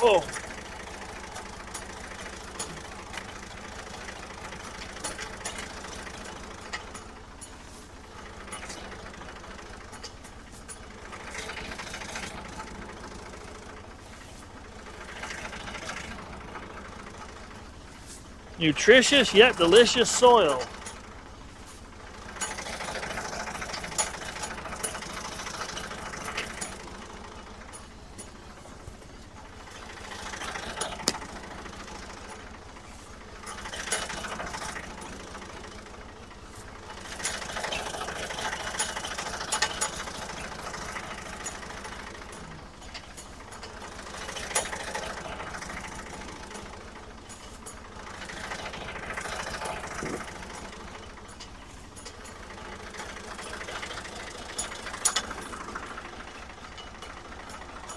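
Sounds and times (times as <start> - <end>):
backhoe diesel engine running: 0.0 - 57.9
metal clanks and rattles: 0.3 - 18.4, 19.6 - 57.9.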